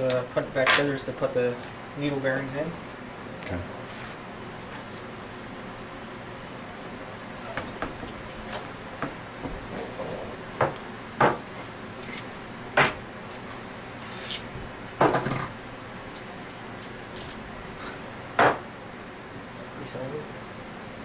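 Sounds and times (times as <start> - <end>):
metal parts clinking on workbench: 13.3 - 14.5, 15.1 - 17.6.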